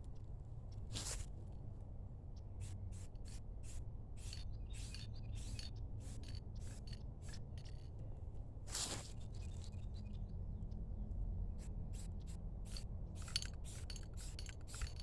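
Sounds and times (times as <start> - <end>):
spray paint can hissing: 2.6 - 6.8, 12.7 - 15.0.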